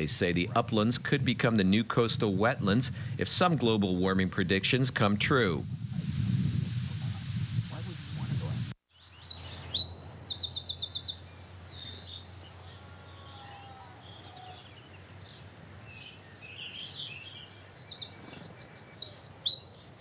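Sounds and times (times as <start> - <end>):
songbirds singing: 8.9 - 20.0.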